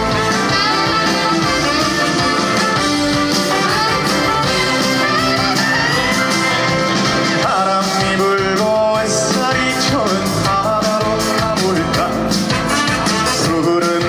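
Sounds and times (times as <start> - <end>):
upbeat band music with guitar: 0.0 - 14.0
man singing: 7.3 - 14.0.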